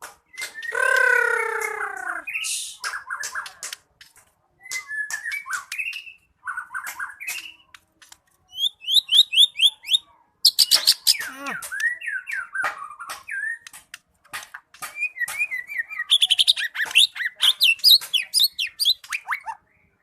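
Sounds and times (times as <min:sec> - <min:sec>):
songbird singing: 0:00.2 - 0:03.7, 0:08.4 - 0:13.8, 0:14.8 - 0:20.0.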